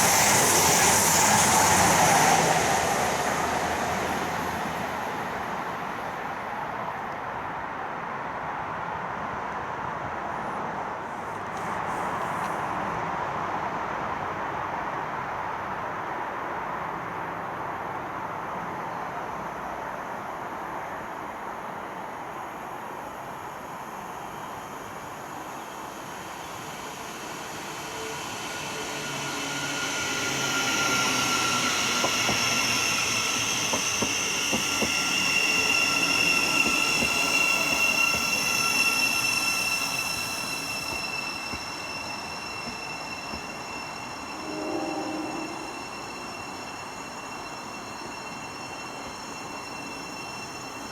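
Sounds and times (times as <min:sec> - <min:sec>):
train high-pitched whining: 0:00.0 - 0:07.6, 0:23.4 - 0:50.9
train rushing on rails: 0:00.0 - 0:50.9.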